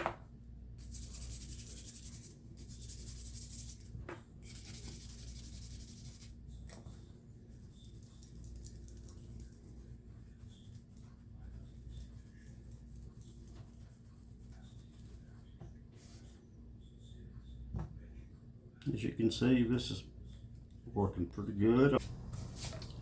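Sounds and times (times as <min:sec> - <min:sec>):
cleaning tool scrubbing knife: 0:00.8 - 0:06.3.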